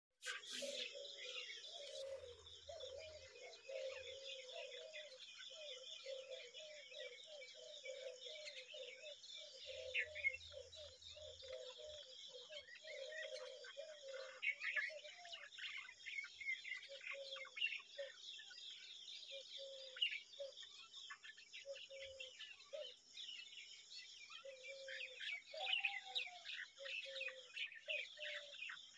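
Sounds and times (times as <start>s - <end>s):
high bird twittering: 0.2s - 6.4s.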